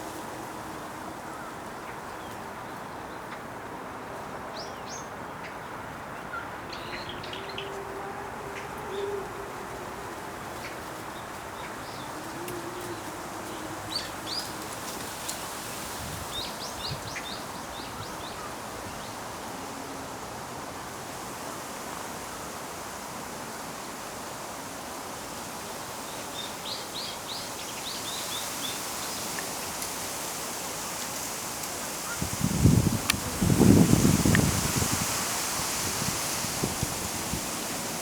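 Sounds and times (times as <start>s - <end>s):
steady rustling hiss: 0.0s - 38.0s.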